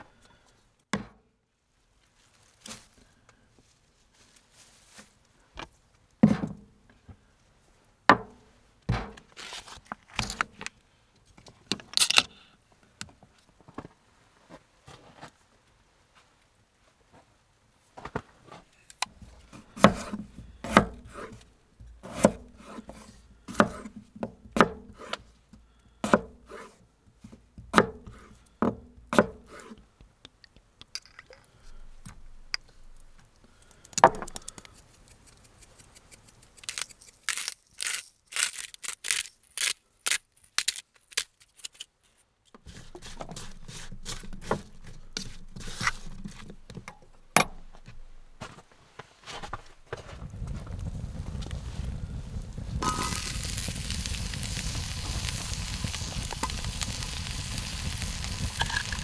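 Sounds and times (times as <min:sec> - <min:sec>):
rustling scrape: 0:04.0 - 0:05.2, 0:09.3 - 0:10.0, 0:34.4 - 0:46.5
wood cracking: 0:33.0 - 0:41.5, 0:50.2 - 0:59.0.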